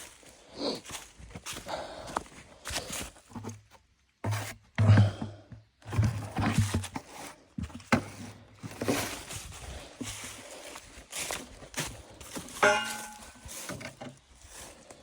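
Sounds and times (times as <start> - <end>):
footsteps: 6.5 - 15.0
metal parts knocking and scraping: 12.6 - 13.4.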